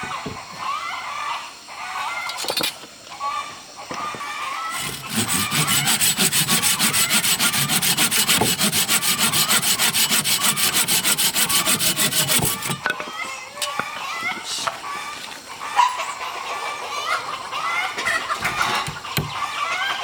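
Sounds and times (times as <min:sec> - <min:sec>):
hand saw cutting wood: 0:04.7 - 0:12.8.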